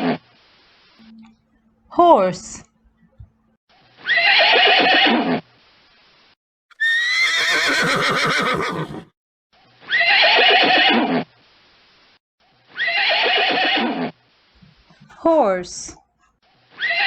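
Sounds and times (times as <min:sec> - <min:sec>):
horse neighing: 0:06.7 - 0:09.1.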